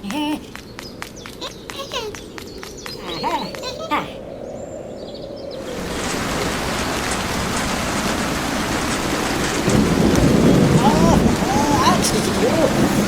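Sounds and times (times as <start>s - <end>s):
water rushing: 5.6s - 13.0s.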